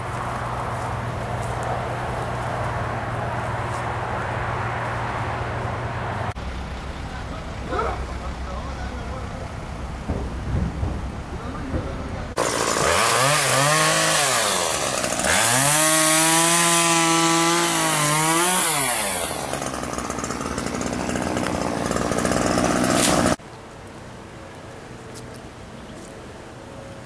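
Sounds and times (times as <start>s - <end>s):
chainsaw revving: 12.4s - 23.4s
loud rough rasping: 12.4s - 23.4s.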